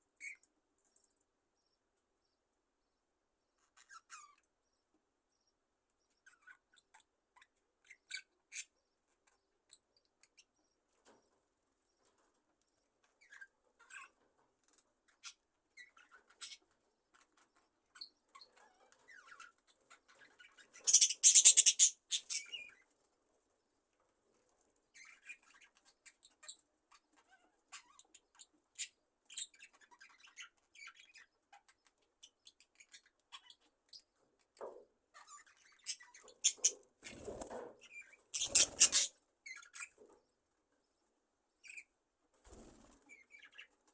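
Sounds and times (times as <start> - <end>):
budgerigars chirping: 20.1 - 22.7, 35.2 - 40.0.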